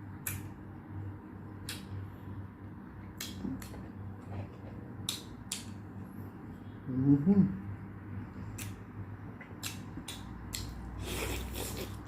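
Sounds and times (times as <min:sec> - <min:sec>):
low steady hum: 0:00.0 - 0:12.0
crisp eating noises: 0:09.5 - 0:12.0.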